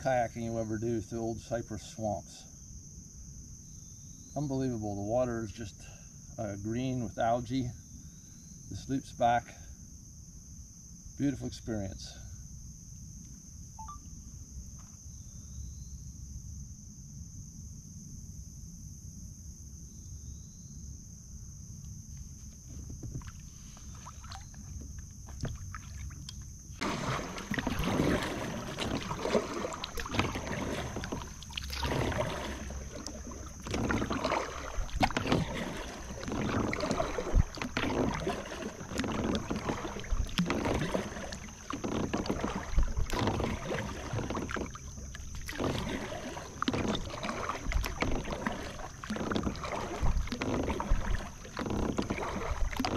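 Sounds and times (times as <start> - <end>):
paddle splashing in water: 22.3 - 52.9.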